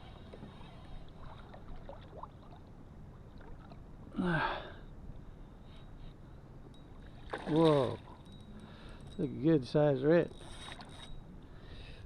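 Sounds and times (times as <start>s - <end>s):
water moving around a kayak: 0.0s - 3.8s
small water splashes: 1.2s - 2.7s, 7.2s - 8.2s.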